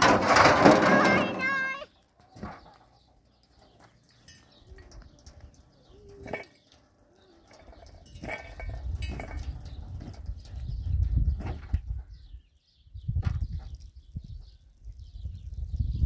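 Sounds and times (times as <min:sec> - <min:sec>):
faint outdoor background: 0:00.0 - 0:16.0
bird cooing softly: 0:05.8 - 0:07.8.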